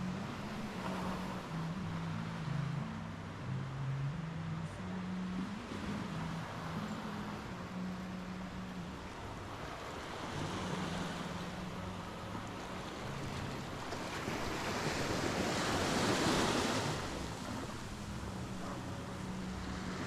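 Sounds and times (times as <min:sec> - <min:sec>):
surf washing onto beach: 0:05.5 - 0:20.0.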